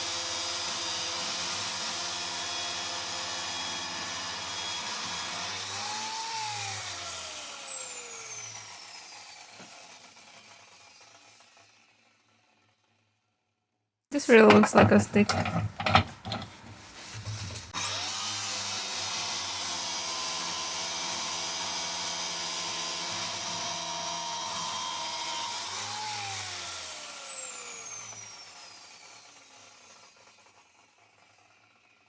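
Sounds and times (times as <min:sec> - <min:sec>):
power tool motor whining: 0:00.0 - 0:12.3, 0:17.7 - 0:30.8.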